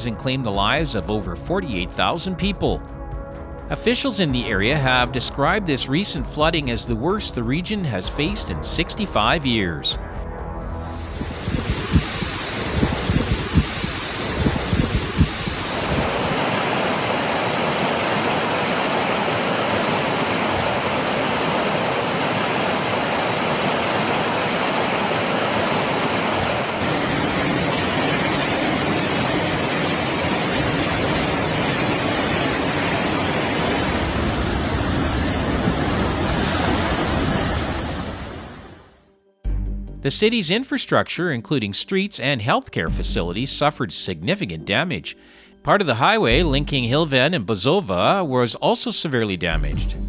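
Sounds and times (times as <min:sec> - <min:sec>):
floodwater rushing: 0:11.1 - 0:38.9.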